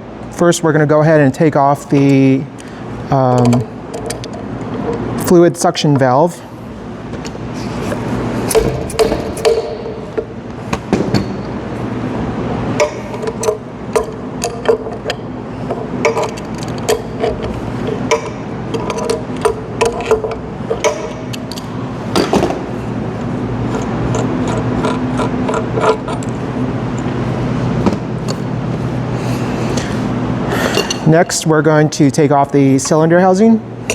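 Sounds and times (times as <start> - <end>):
low hum: 6.3 - 31.0.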